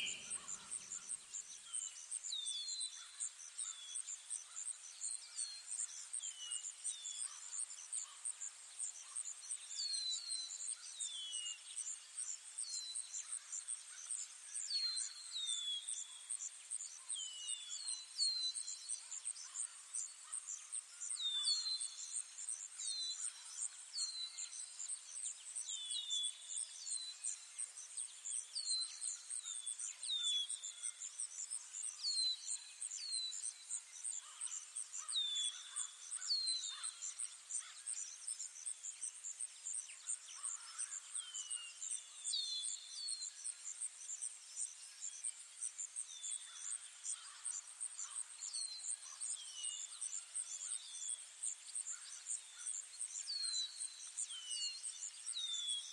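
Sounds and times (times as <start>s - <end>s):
bird chirps: 0.0s - 0.6s.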